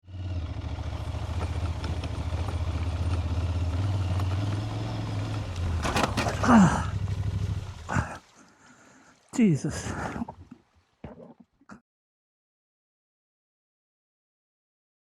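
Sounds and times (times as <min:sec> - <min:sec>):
motorcycle engine idling: 0:00.1 - 0:08.0
loud brief clatter: 0:05.8 - 0:06.7.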